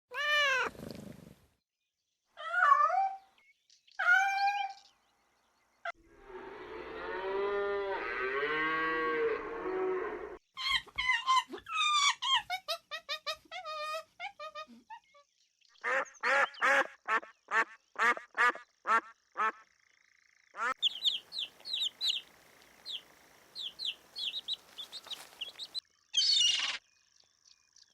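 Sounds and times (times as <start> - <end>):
animal calls: 20.6 - 26.8.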